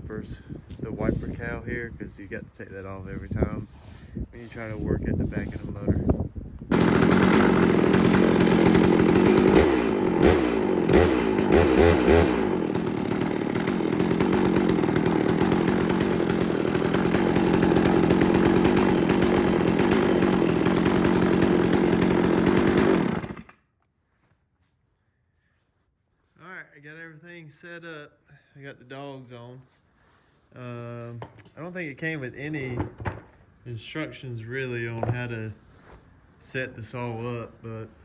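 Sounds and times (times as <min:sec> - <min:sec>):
chainsaw engine running: 0:06.7 - 0:23.6.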